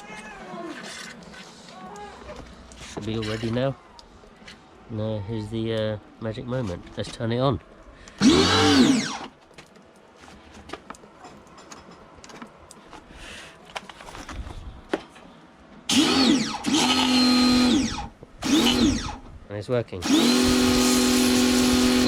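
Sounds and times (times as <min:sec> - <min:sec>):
electric motor spinning up: 0:08.2 - 0:09.3, 0:15.9 - 0:19.2, 0:20.0 - 0:22.0.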